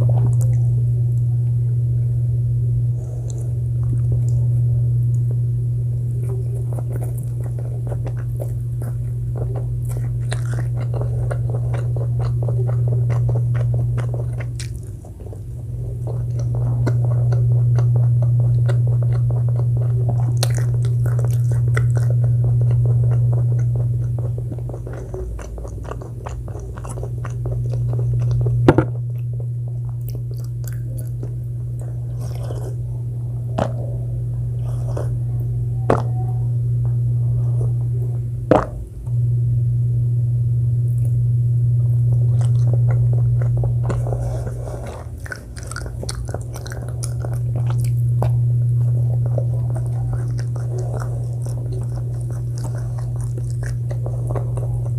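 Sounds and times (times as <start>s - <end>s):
steady low hum: 0.0s - 54.9s
close chewing and biting: 6.0s - 36.2s, 42.0s - 54.9s.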